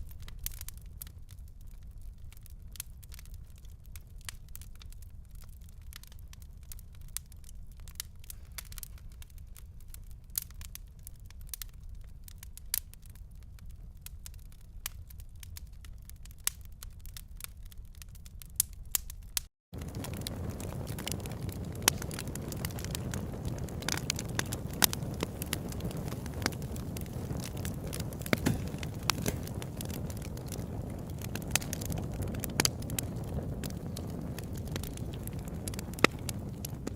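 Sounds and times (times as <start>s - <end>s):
fire crackling: 0.0s - 36.9s.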